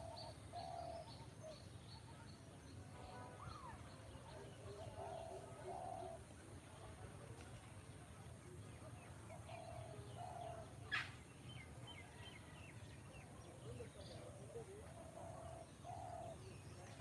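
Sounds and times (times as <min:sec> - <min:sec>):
faint birds calling: 0:00.0 - 0:02.4, 0:03.0 - 0:06.3, 0:09.3 - 0:12.5, 0:13.2 - 0:17.0.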